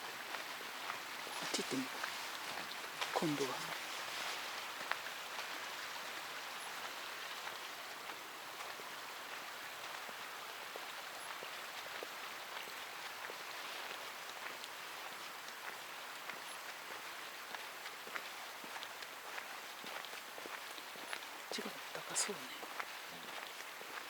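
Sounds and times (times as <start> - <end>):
strong wind through trees: 0.0 - 24.0
faint small ticks: 10.8 - 21.4.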